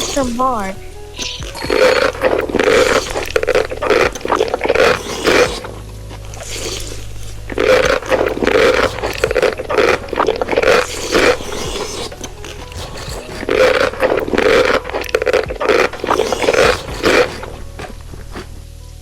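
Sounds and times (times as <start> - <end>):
crunching and chewing: 0.9 - 19.0.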